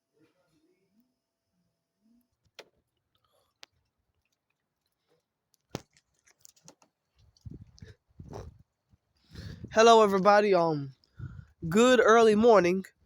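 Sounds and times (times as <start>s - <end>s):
low rumbling on microphone: 7.4s - 8.6s, 9.3s - 9.8s, 11.2s - 11.7s.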